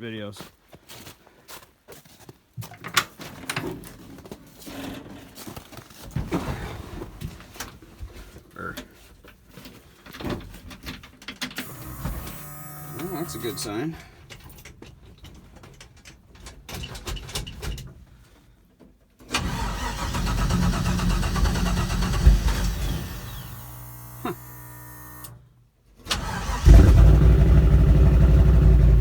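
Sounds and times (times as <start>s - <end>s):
car engine starting and running: 11.6s - 13.8s, 19.4s - 25.4s, 26.1s - 29.0s
engine clicking: 11.6s - 13.8s, 19.4s - 24.5s, 26.1s - 29.0s.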